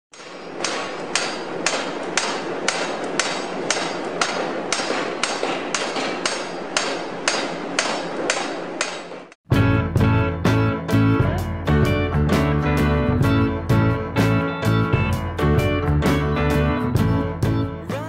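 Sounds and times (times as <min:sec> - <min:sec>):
sharp knocks: 0:00.1 - 0:09.4.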